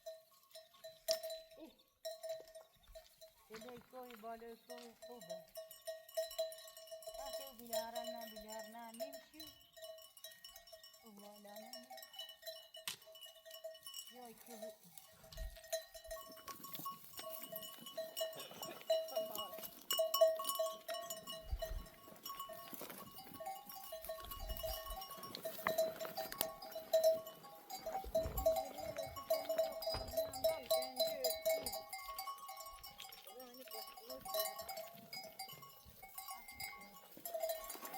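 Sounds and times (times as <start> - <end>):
sheep bells ringing: 0.0 - 37.9.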